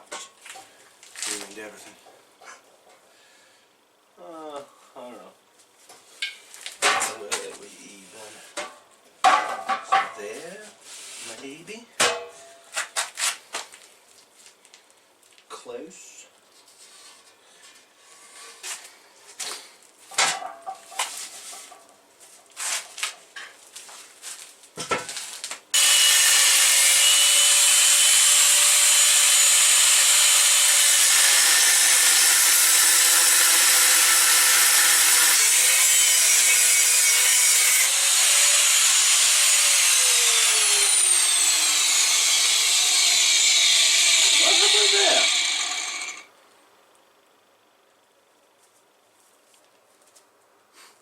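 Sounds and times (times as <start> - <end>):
angle grinder cutting steel: 25.8 - 46.3.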